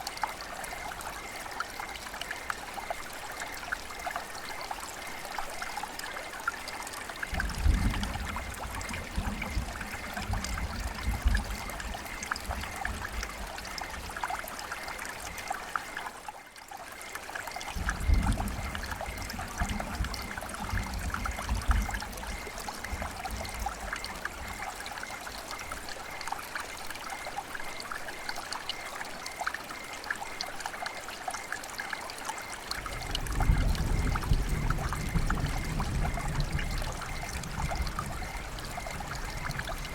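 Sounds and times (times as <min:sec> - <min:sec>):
river water babbling: 0:08.2 - 0:34.6.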